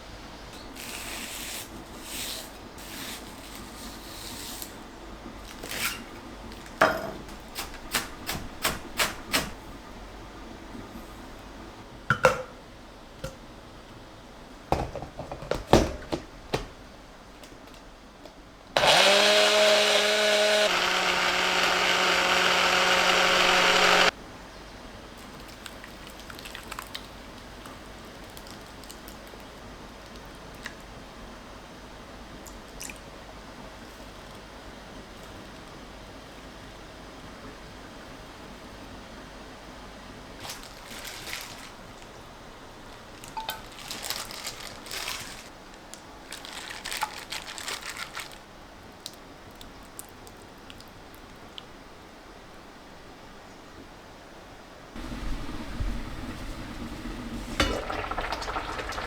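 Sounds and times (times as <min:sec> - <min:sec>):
small electric motor running: 0:18.8 - 0:24.1.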